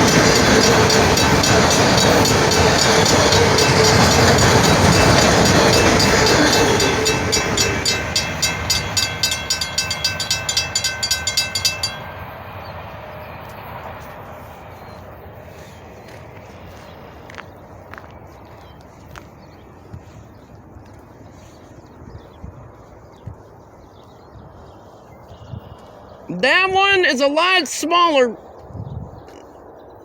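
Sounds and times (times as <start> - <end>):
crossing bell dinging: 0.0 - 13.4
train wheels rumbling on rails: 0.0 - 22.0.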